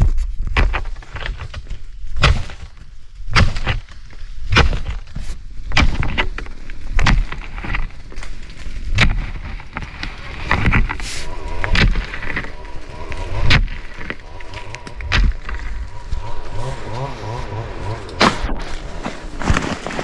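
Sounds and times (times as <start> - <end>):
sharp cracks and knocks: 0.0 - 20.0
rustling: 4.8 - 20.0.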